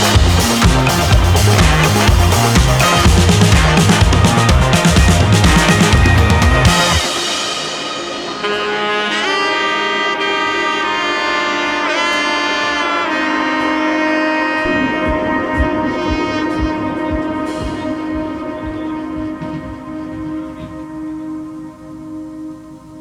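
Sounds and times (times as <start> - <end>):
steady low beat: 0.0 - 8.6, 14.6 - 22.8
saxophone-like horn lead: 0.0 - 23.0.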